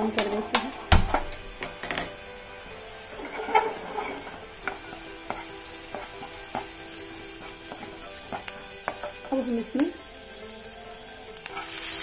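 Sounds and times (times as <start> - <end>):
spices sizzling in a frying pan: 0.0 - 12.0
plastic spatula scraping and tapping pan: 3.1 - 6.8.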